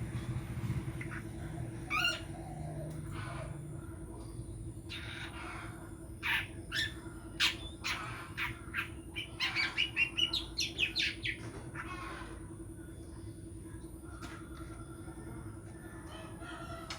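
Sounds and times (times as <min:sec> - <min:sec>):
steady low hum: 0:00.0 - 0:16.9
bird calls and chirps: 0:00.1 - 0:12.4.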